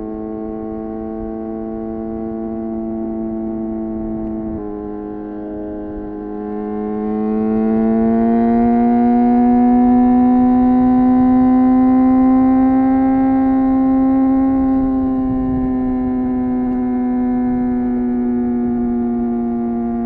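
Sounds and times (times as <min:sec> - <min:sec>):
motorcycle engine and exhaust: 0:00.0 - 0:20.0.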